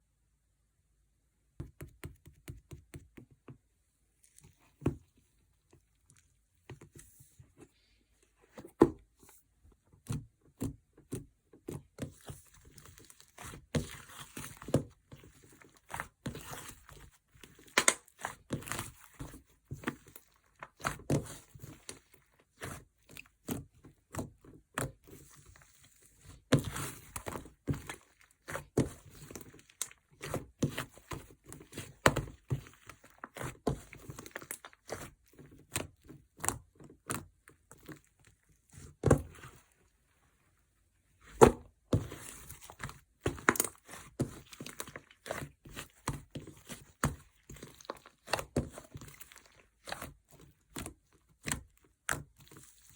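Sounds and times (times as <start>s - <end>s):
slime squishing by hand: 1.6s - 52.9s.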